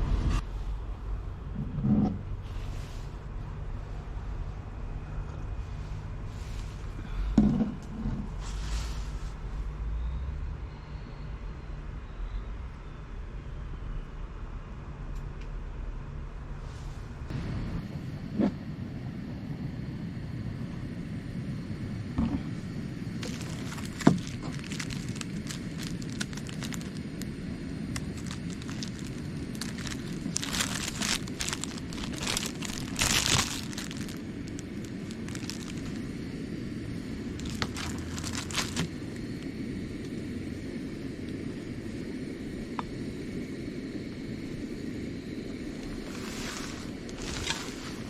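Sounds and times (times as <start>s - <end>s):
steady low hum: 0.0s - 48.0s
crinkling and rustling: 23.2s - 36.1s, 37.4s - 39.5s, 45.8s - 48.0s.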